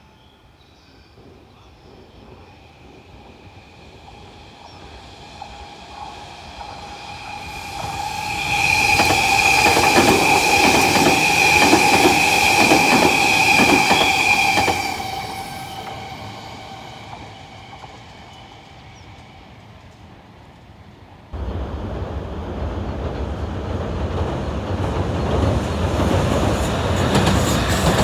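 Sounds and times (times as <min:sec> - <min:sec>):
train passing with high whine: 0:00.0 - 0:28.0.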